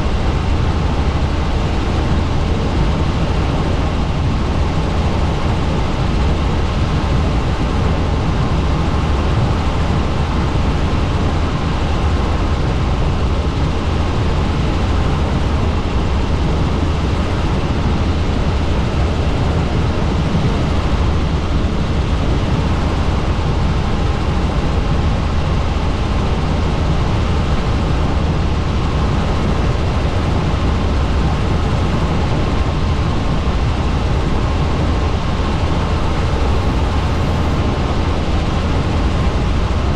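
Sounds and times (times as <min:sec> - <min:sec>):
helicopter rotor drone: 0:00.0 - 0:39.9.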